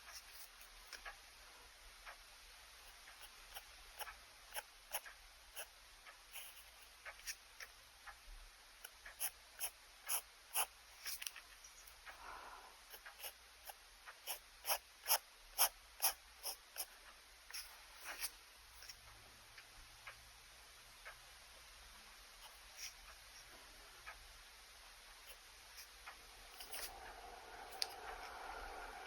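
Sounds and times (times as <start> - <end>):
pen scratching on paper: 2.9 - 5.7, 6.3 - 7.7, 9.1 - 12.0, 12.9 - 19.0, 26.5 - 28.4.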